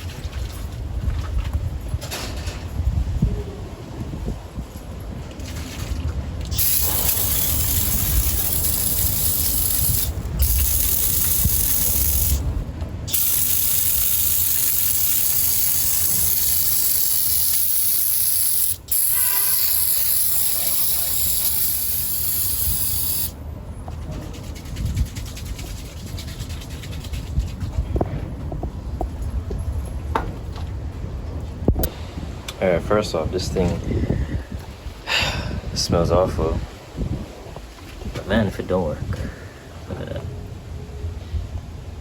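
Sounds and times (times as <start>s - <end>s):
aerosol can spraying hiss: 6.5s - 12.5s, 13.1s - 23.4s.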